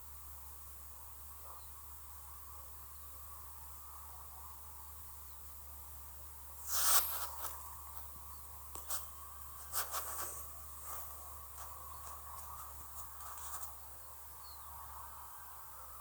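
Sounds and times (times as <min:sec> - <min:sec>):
faint steady hum: 0:00.0 - 0:16.0
crackling rustle: 0:06.6 - 0:13.9
scattered clicks and crackles: 0:08.7 - 0:13.8.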